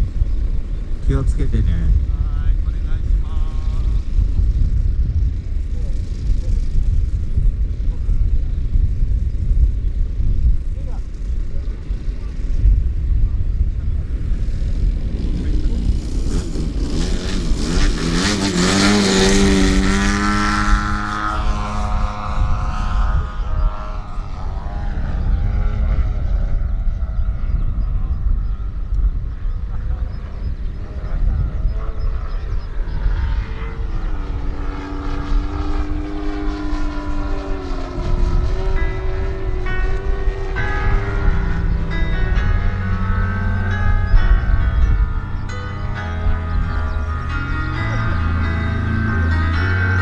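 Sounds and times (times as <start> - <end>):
model airplane engine and propeller: 0.0 - 50.0.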